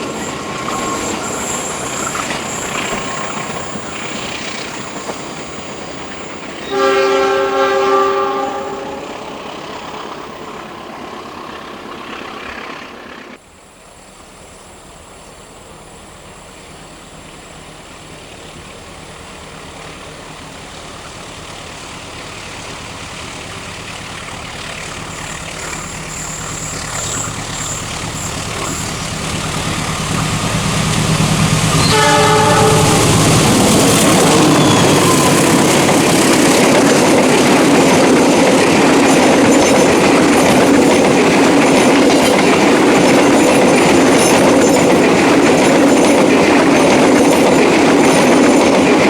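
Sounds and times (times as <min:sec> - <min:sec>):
approaching train rumble: 0:00.0 - 0:49.0
train running along track: 0:00.0 - 0:49.0
diesel locomotive horn: 0:06.6 - 0:09.4, 0:24.7 - 0:37.0.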